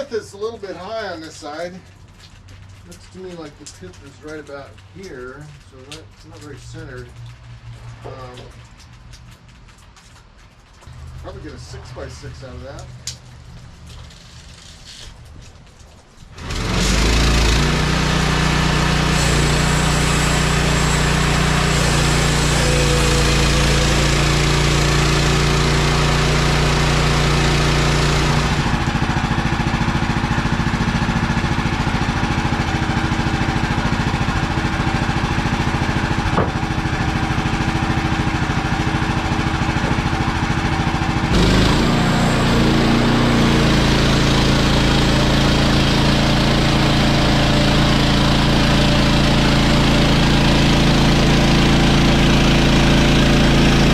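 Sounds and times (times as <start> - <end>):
sawmill petrol engine running: 16.3 - 53.9.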